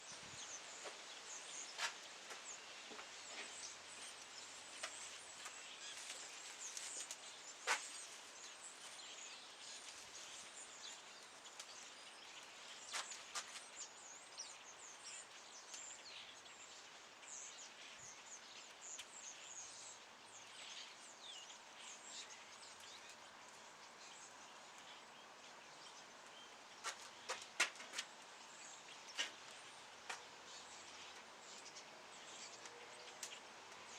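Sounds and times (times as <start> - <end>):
burning wood popping: 4.7 - 9.0, 26.2 - 30.5
campfire crackling: 22.6 - 33.9.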